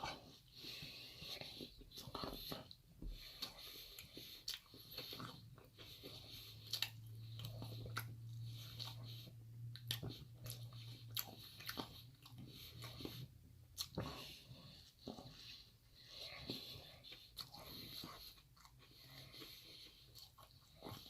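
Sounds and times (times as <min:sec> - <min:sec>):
faint low hum: 0:00.0 - 0:21.0
person chewing food: 0:00.0 - 0:21.0.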